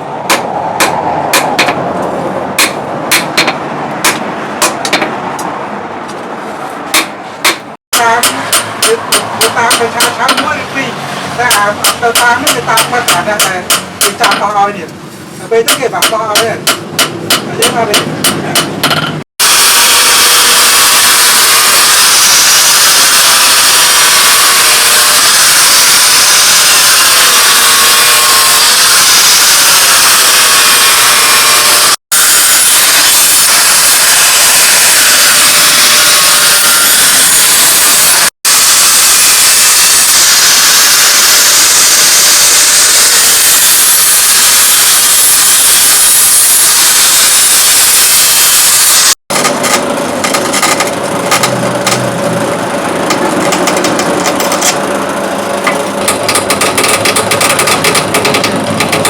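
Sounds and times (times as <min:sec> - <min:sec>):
power grinder grinding steel: 0:19.4 - 0:59.0.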